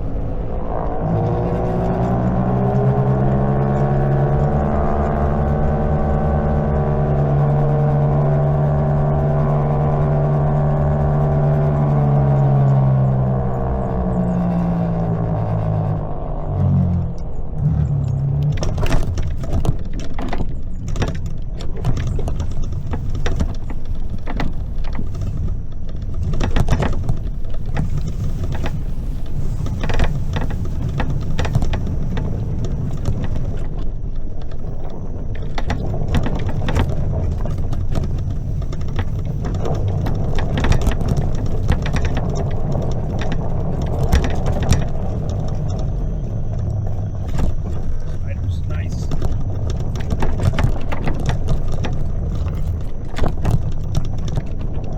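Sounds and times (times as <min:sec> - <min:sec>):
tyre rumble: 0:00.0 - 0:54.9
wind on microphone: 0:00.0 - 0:54.9
bike mechanism rattling and knocking: 0:17.7 - 0:54.9.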